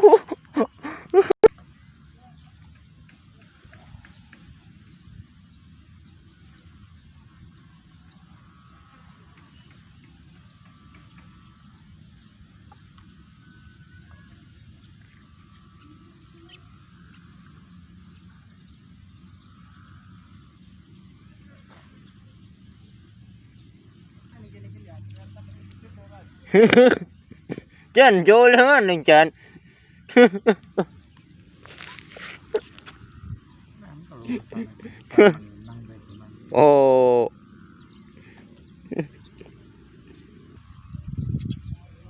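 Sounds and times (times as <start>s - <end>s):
frogs calling: 0.0s - 42.0s
low outdoor rumble: 0.0s - 42.0s.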